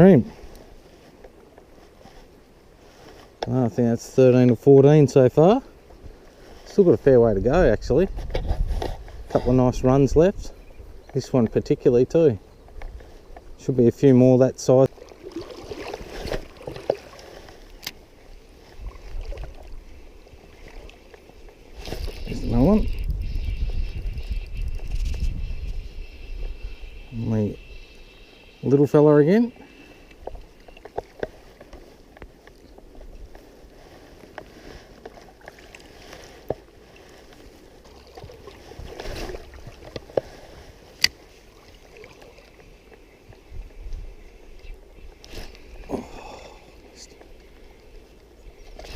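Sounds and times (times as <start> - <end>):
wind rumble on microphone: 6.9 - 11.5, 21.7 - 28.0, 43.3 - 45.2
stream water running: 8.8 - 48.9
water splashing: 14.8 - 22.5, 33.9 - 43.0.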